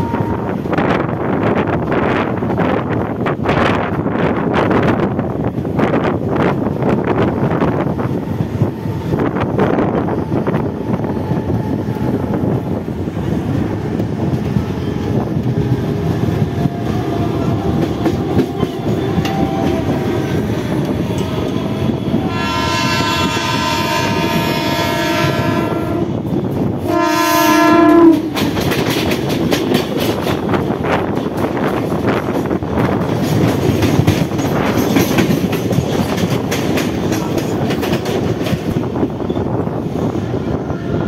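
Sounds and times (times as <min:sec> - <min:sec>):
train horn blast: 0:00.0 - 0:00.8, 0:16.8 - 0:28.6
train wheels clattering on rail: 0:00.0 - 0:40.7
passing train clatter: 0:00.0 - 0:41.0.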